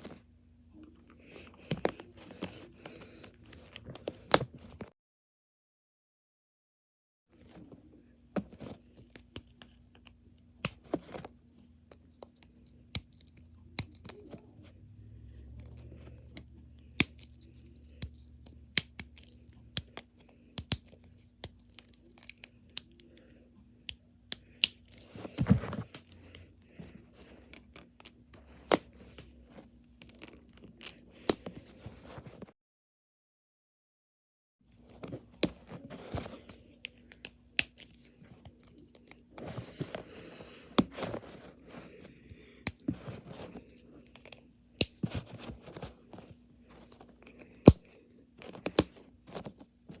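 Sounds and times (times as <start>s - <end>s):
faint steady hum: 7.4s - 32.5s, 34.7s - 50.0s
rustling: 38.2s - 42.1s.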